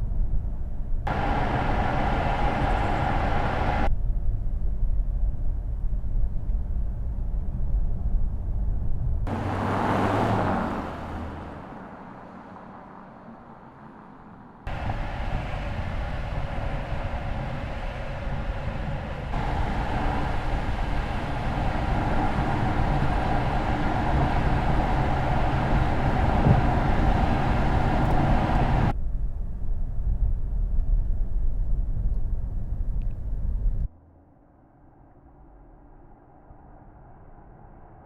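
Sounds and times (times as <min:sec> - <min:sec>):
faint hum: 0:00.0 - 0:09.4, 0:13.2 - 0:38.0
car road noise: 0:01.0 - 0:03.9, 0:09.2 - 0:29.0.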